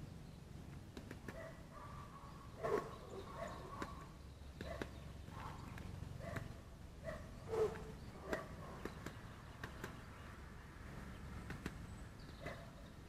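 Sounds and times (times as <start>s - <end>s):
woodpecker tapping on wood: 0.9s - 1.5s, 3.7s - 6.6s, 7.7s - 10.2s.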